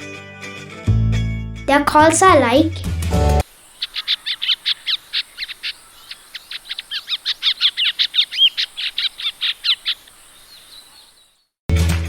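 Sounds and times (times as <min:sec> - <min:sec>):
bird calling with whistled notes: 0:03.6 - 0:11.5.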